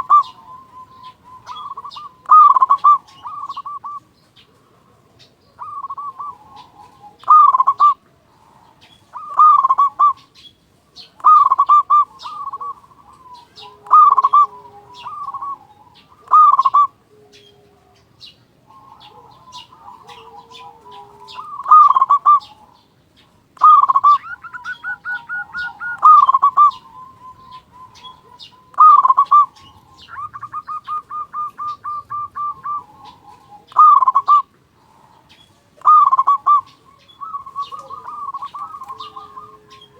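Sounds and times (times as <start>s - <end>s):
dove cooing: 0.0s - 39.9s
faint high chirps: 35.2s - 39.9s.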